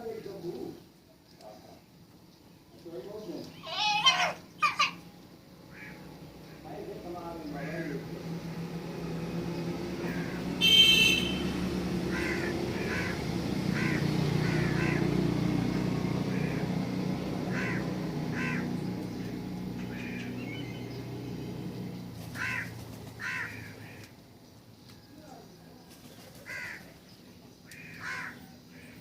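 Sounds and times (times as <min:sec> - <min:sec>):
crow-like bird caws: 0:03.6 - 0:05.0, 0:05.7 - 0:06.1, 0:10.0 - 0:10.7, 0:12.0 - 0:15.4, 0:16.2 - 0:18.8, 0:19.8 - 0:20.6, 0:22.3 - 0:24.1, 0:26.4 - 0:26.9, 0:27.7 - 0:29.0.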